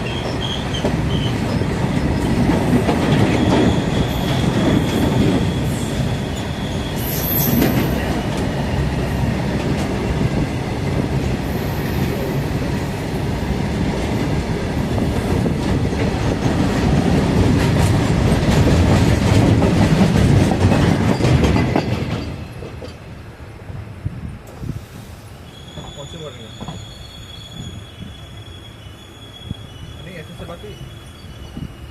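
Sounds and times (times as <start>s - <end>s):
train rumbling on track: 0.0s - 31.9s
wheel clatter over rails: 15.2s - 23.0s.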